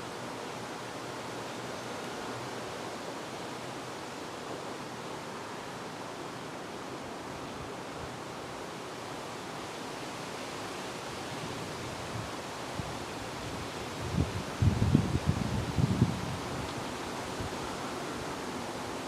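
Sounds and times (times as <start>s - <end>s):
leaves rustling: 6.9s - 19.0s
steady wind rushing: 11.6s - 19.0s.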